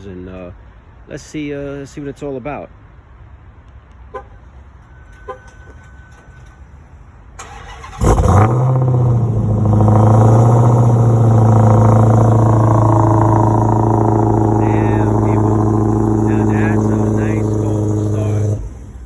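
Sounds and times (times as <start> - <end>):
car engine starting and idling: 4.6 - 19.0.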